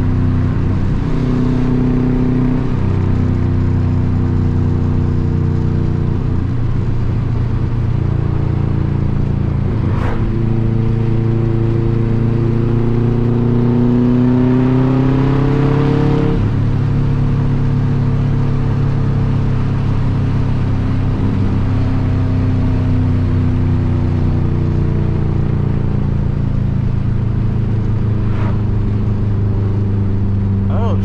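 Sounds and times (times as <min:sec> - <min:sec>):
car engine accelerating: 0:00.0 - 0:31.0.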